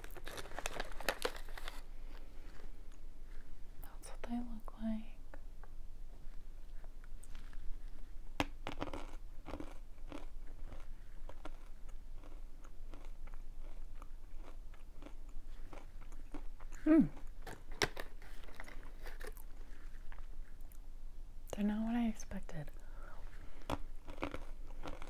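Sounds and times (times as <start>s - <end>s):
crunching and chewing chickpeas: 0.0s - 3.1s, 6.7s - 20.8s, 23.3s - 25.0s
person humming: 16.8s - 17.2s.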